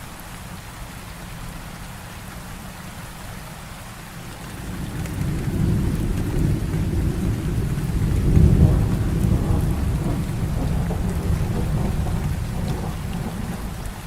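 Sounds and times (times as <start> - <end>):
heavy rain falling: 0.0 - 14.0
thunder rolling: 4.3 - 14.0.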